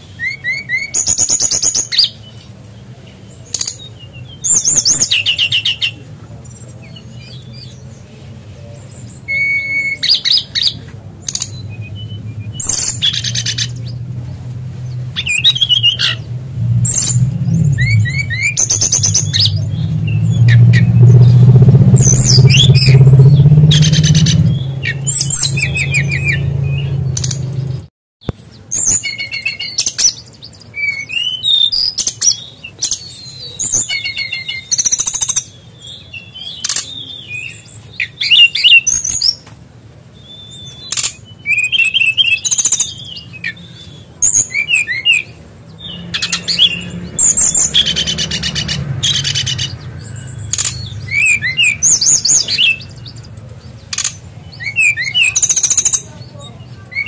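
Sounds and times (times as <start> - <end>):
bird singing high chirps and trills: 0.0 - 39.4, 40.1 - 57.0
low hum: 10.9 - 27.9.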